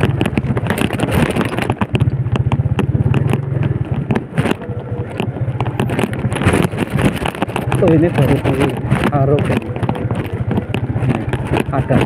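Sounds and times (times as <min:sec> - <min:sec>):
motorcycle engine running: 0:00.0 - 0:12.0
short knocks and rattles: 0:00.0 - 0:12.0
wind on microphone: 0:00.0 - 0:12.0.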